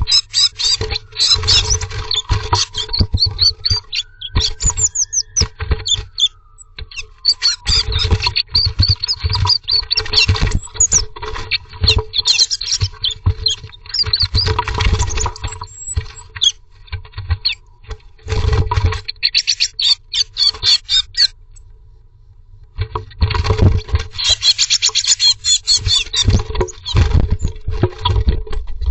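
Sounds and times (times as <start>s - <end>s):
high-pitched squeaky bird calls: 0.0s - 16.6s, 19.0s - 21.4s, 24.1s - 27.5s
birds scratching and knocking: 0.0s - 21.3s, 22.7s - 28.9s.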